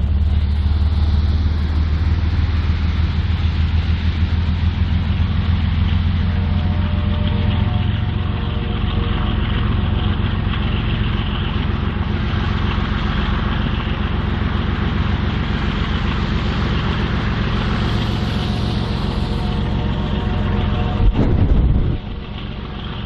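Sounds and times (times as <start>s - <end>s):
diesel locomotive engine drone: 0.0s - 23.0s
hiss: 15.5s - 20.2s.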